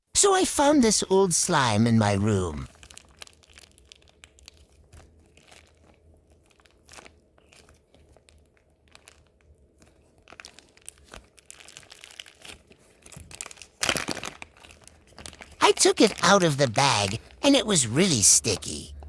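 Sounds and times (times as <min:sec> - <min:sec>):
plastic bag crinkling: 0:02.8 - 0:16.4
sticky slime crackles: 0:02.8 - 0:17.7.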